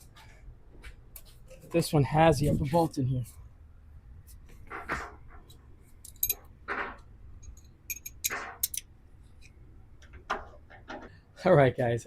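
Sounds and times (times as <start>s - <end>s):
metallic clicks and clinks: 6.0s - 6.5s, 7.4s - 8.9s.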